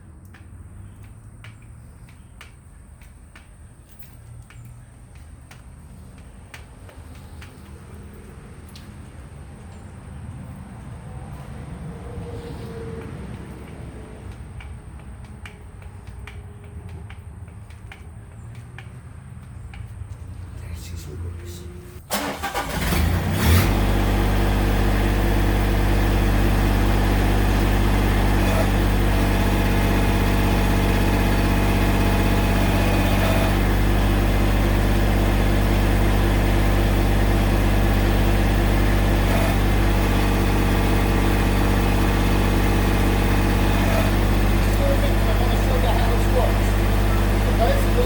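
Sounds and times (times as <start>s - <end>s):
diesel tractor engine starting and idling: 20.8s - 48.0s.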